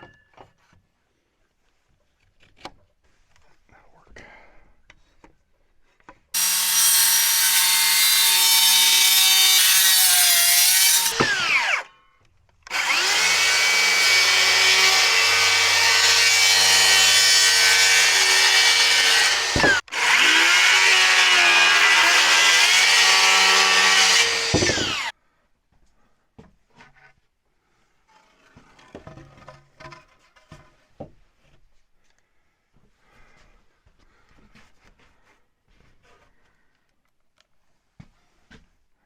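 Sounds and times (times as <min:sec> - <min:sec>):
electric saw cutting wood: 0:06.4 - 0:11.9, 0:12.7 - 0:25.1.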